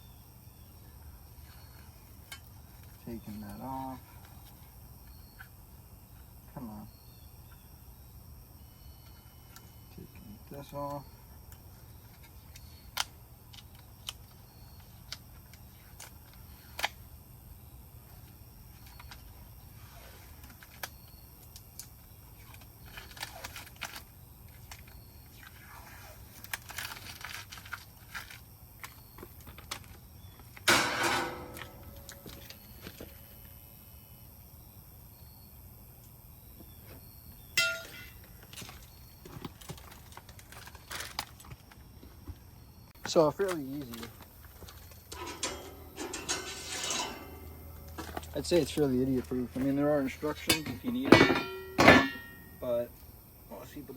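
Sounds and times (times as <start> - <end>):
low steady hum: 30.2 - 36.6, 42.9 - 53.7
metallic clank: 30.7 - 32.4, 37.6 - 38.3, 45.0 - 49.3, 50.4 - 52.6.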